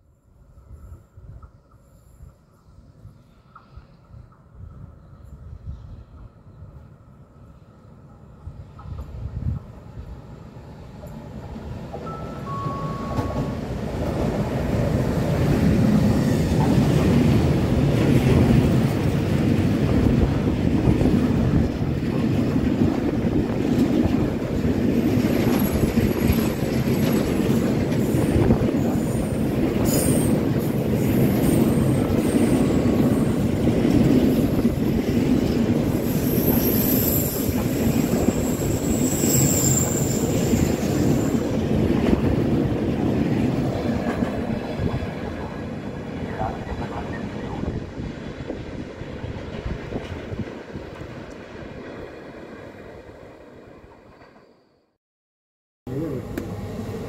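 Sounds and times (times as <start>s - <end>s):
train wheels rumbling on rails: 0.6s - 52.7s
high-pitched wheel squeals: 36.0s - 41.5s.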